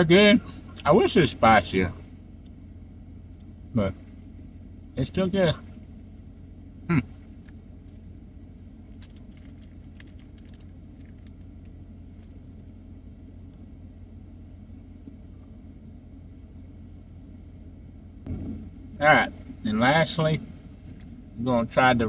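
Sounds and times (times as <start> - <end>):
car engine idling: 0.0 - 22.0
faint clicks and rustles: 7.2 - 18.8.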